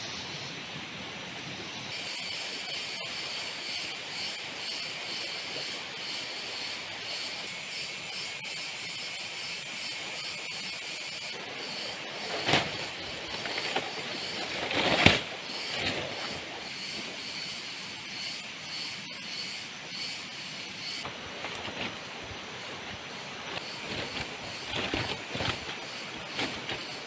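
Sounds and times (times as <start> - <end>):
heavy rain hissing: 0.0 - 27.0
swishes or rustles: 12.2 - 16.6, 21.0 - 27.0.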